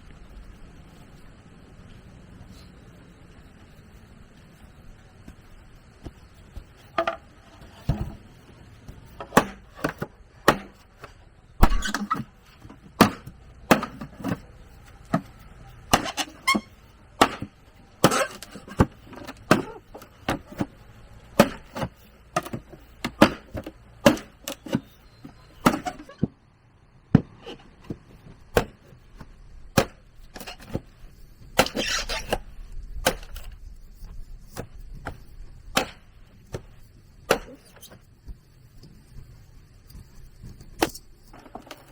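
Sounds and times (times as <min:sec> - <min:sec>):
blade chopping bamboo: 0:08.8 - 0:26.1, 0:28.5 - 0:30.9, 0:31.6 - 0:32.4, 0:33.0 - 0:33.5, 0:34.6 - 0:36.7, 0:37.3 - 0:37.7
scraping rustle: 0:27.3 - 0:41.9.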